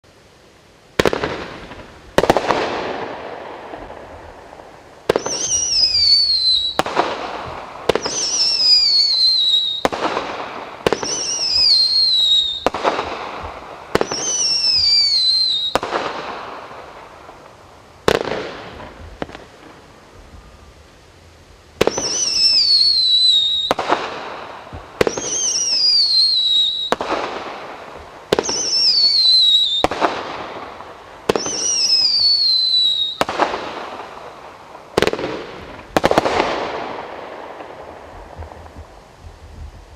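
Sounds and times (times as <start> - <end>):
fireworks reports with hiss: 0.0 - 39.9
fireworks falling whistle: 5.0 - 17.0, 21.8 - 39.9.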